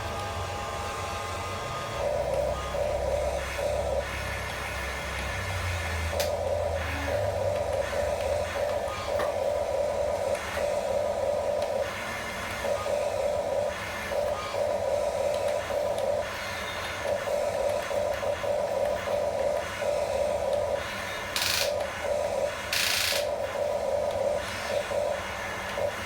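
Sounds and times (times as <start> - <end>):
toy gear motors whirring: 20.5 - 22.0, 22.6 - 23.4.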